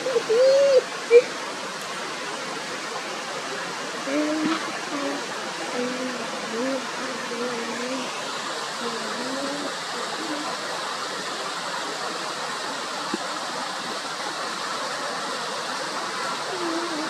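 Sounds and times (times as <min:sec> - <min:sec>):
stream rushing over waterfall: 0:00.0 - 0:17.0.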